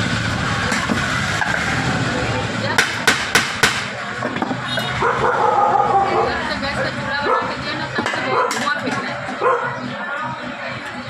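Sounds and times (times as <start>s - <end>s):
voices: 0.2s - 11.0s
hammer tapping metal: 2.8s - 5.0s.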